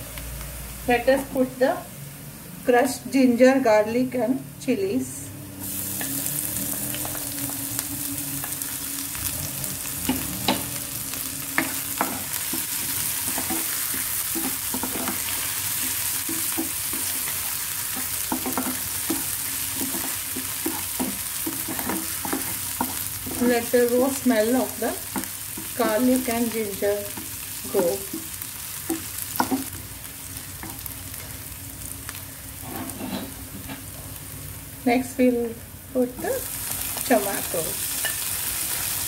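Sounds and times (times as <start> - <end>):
paste sizzling in hot oil: 5.6 - 33.5, 36.2 - 39.0
wooden spatula scraping pan: 11.6 - 23.8, 32.6 - 33.8.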